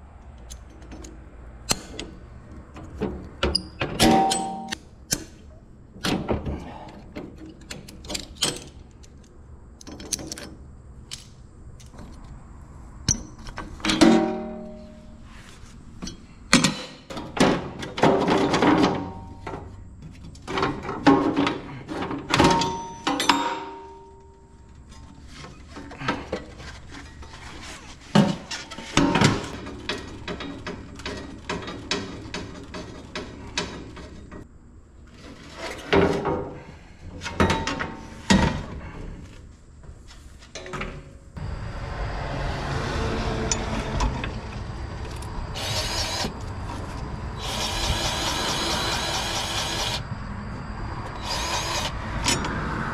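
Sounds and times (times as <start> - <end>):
metal parts clanking: 3.9 - 5.4, 7.3 - 12.2, 20.4 - 24.2.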